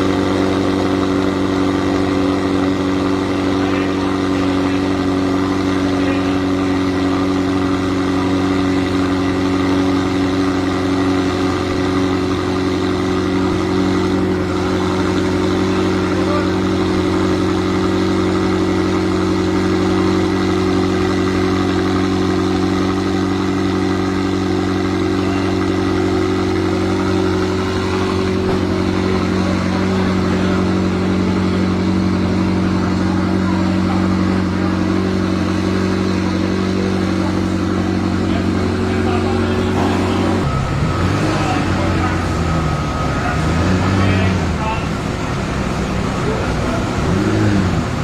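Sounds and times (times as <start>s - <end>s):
sports car engine running: 0.0s - 48.0s.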